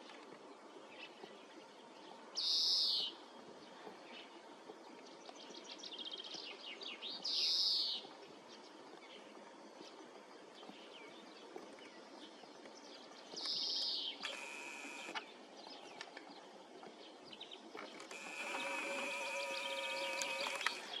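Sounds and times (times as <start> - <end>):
songbird call: 2.4 - 3.2, 18.1 - 21.0
faint bird chirps: 18.2 - 20.9.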